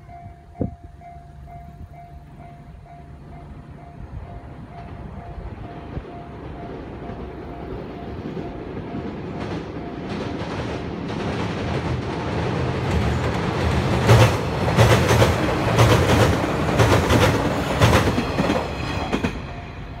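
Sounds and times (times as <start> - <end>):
train wheels clattering on bridge: 4.4 - 20.0.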